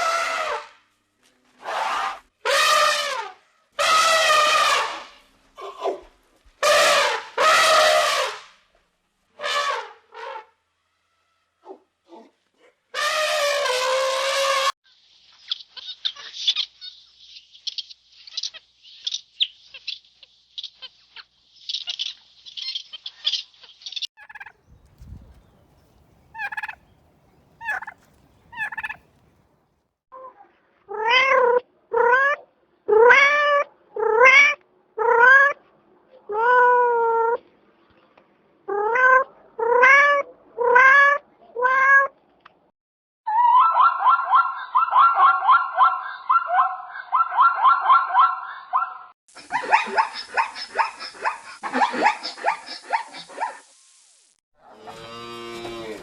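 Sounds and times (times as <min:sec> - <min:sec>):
animal calls: 0:24.2 - 0:29.4, 0:43.3 - 0:53.7.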